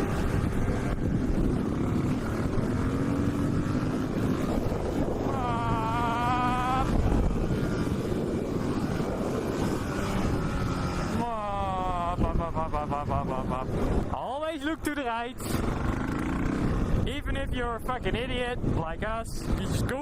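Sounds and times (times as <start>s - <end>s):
motorcycle engine running: 0.0s - 14.1s, 15.4s - 17.2s
wind noise on microphone: 0.0s - 20.0s.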